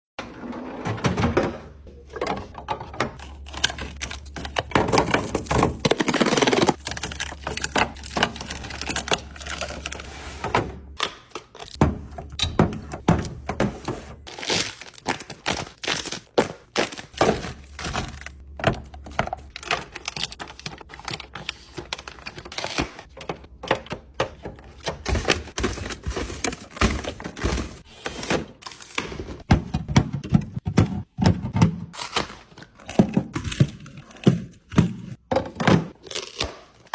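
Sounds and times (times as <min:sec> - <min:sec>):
packaging crinkling: 0:14.3 - 0:18.4.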